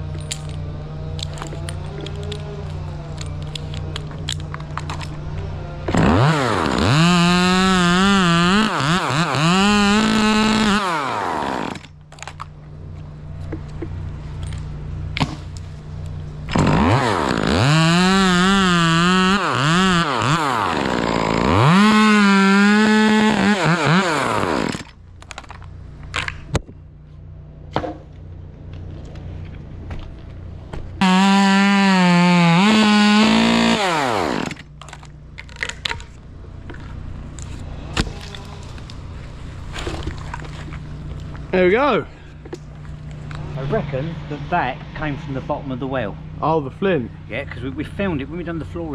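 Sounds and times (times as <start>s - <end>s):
chainsaw revving: 5.8s - 11.9s, 16.5s - 25.0s, 31.0s - 34.7s.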